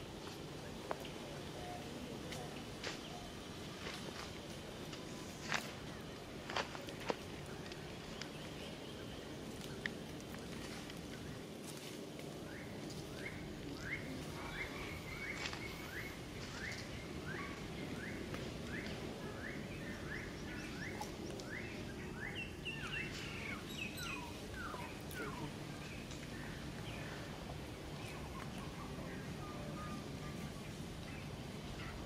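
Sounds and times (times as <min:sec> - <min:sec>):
outdoor background noise: 0:00.0 - 0:32.0
bird chirping: 0:12.5 - 0:32.0.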